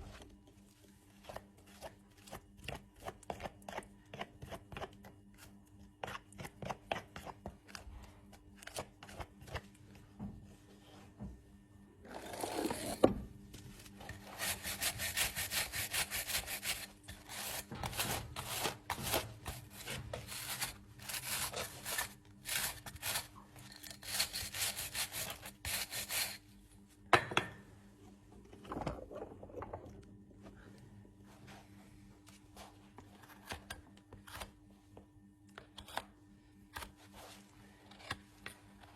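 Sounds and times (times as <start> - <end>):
rasping a horse's hoof: 14.2 - 18.7.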